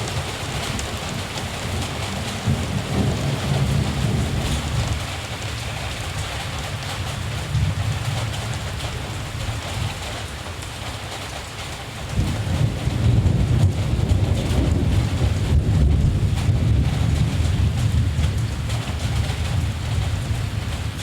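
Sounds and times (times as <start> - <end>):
distant thunder rumbling: 0.0 - 5.1, 12.1 - 21.0
rain falling: 0.0 - 21.0.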